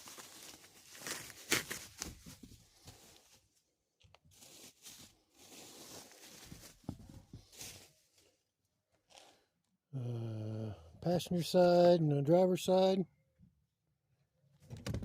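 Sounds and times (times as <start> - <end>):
packaging rustling and tearing: 0.0 - 3.3.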